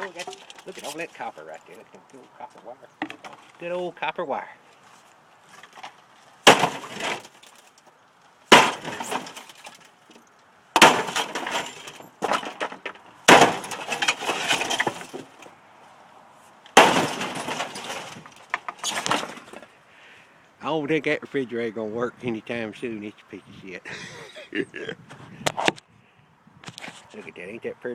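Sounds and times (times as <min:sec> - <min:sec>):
sledgehammer smashing refrigerator: 0:06.4 - 0:07.4, 0:08.5 - 0:09.8, 0:10.8 - 0:15.4, 0:16.8 - 0:19.6
clatter of breaking pieces: 0:06.5 - 0:07.8, 0:08.5 - 0:10.0, 0:10.8 - 0:15.5, 0:16.7 - 0:19.6.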